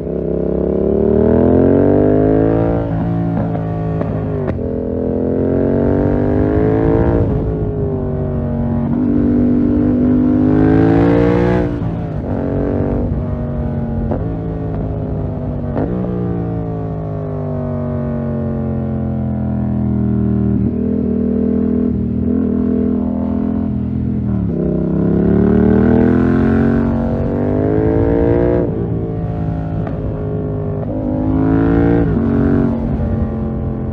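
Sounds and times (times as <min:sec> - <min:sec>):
motorcycle engine accelerating: 0:00.0 - 0:33.9.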